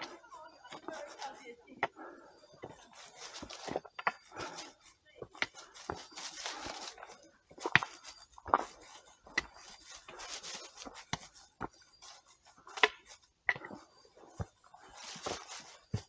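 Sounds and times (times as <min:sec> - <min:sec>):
footsteps crunching leaves and twigs: 0:00.0 - 0:16.0
rustling leaves: 0:02.8 - 0:03.8, 0:05.6 - 0:12.5, 0:14.8 - 0:15.9.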